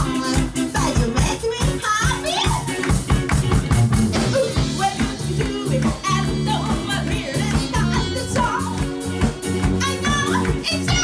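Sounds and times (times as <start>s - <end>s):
singing voice or saxophone: 0.0s - 2.8s, 4.0s - 11.0s
bass: 0.0s - 11.0s
drum kit steady beat: 0.0s - 11.0s
electric guitar: 0.0s - 11.0s
rock band playing: 0.0s - 11.0s.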